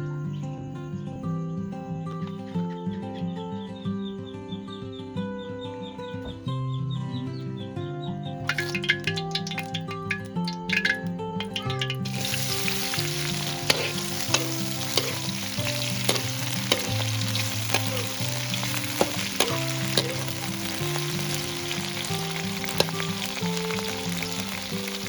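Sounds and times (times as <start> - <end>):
background music with held notes: 0.0 - 25.0
food sizzling in a hot pan: 8.5 - 25.0
utensil clicking against pan: 8.5 - 25.0.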